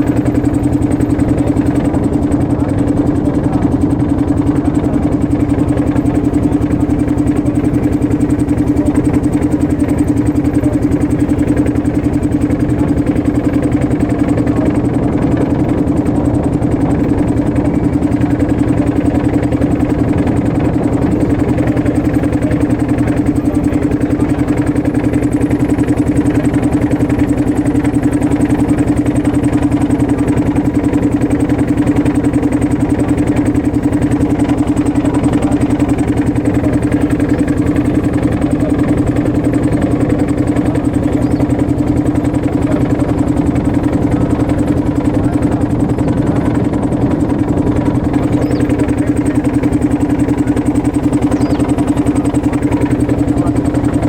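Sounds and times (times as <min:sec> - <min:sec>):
motorboat engine droning: 0:00.0 - 0:54.0.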